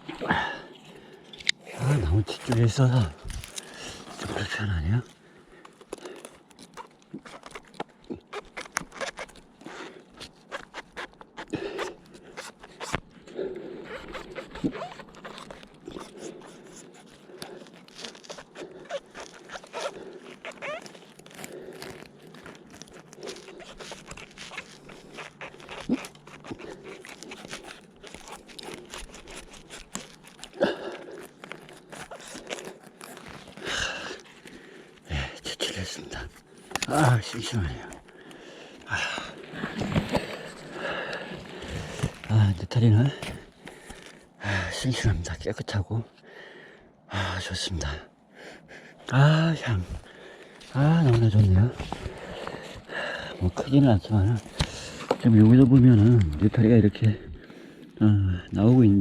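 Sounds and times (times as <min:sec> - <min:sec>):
hands rustling and scraping: 0:00.0 - 0:45.0, 0:47.8 - 0:59.0
mushrooms snapping: 0:01.3 - 0:13.2, 0:13.9 - 0:44.6, 0:48.6 - 0:58.9
mushrooms snapping off: 0:02.4 - 0:04.5, 0:36.1 - 0:42.6, 0:49.8 - 0:57.1.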